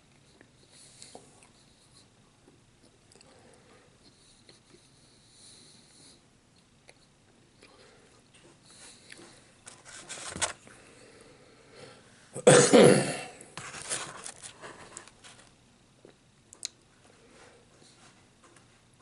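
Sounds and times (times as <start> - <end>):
man coughing: 12.4 - 13.4.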